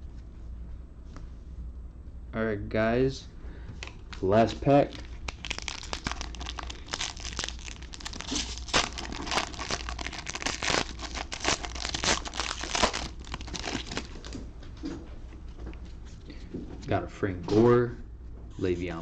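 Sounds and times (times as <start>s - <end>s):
wrapper tearing and crinkling: 4.4s - 14.4s.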